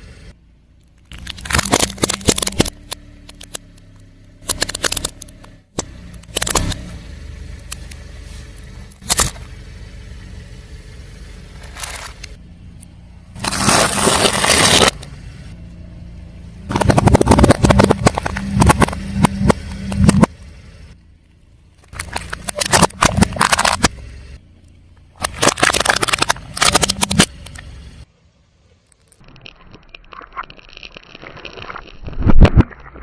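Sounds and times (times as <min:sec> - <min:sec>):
car engine running: 0:00.0 - 0:28.8
tyre crushing brittle objects: 0:01.0 - 0:03.7, 0:04.4 - 0:05.4, 0:06.2 - 0:06.9, 0:13.4 - 0:15.0, 0:16.7 - 0:20.3, 0:21.8 - 0:23.9, 0:25.2 - 0:27.6, 0:29.0 - 0:33.0.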